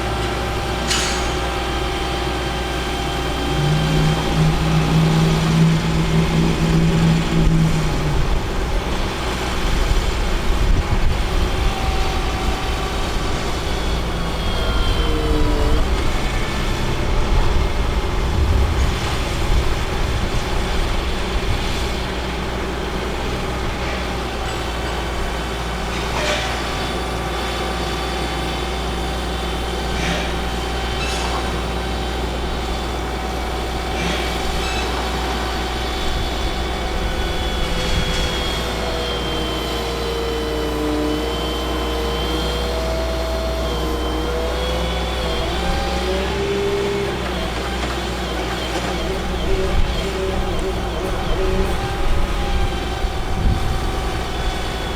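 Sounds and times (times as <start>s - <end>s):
diesel truck engine running: 42.9s - 54.9s.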